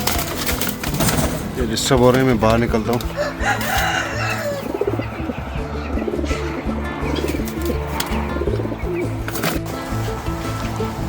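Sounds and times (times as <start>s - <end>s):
music with long held notes: 0.0s - 11.0s
pigeons cooing: 2.4s - 11.0s.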